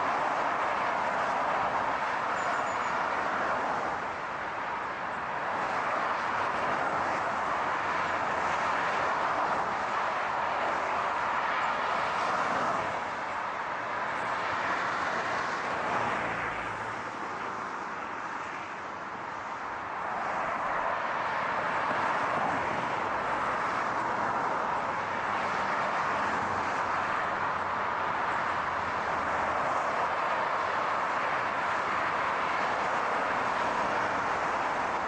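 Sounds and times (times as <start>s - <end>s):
car tyre and engine noise: 0.0s - 35.0s.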